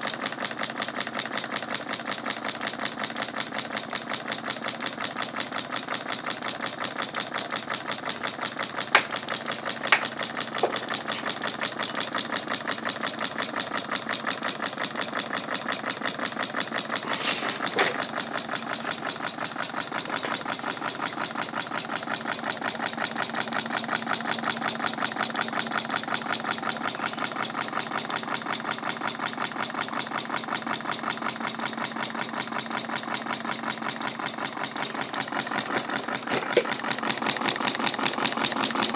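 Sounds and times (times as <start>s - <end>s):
steam engine exhaust beating: 7.8s - 13.5s.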